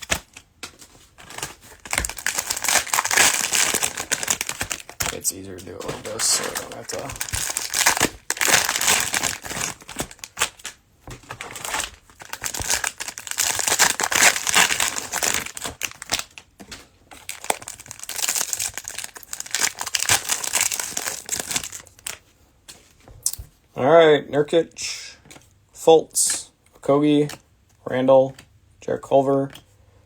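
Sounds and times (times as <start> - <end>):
cellophane wrapper crinkling and tearing: 0.0 - 22.2.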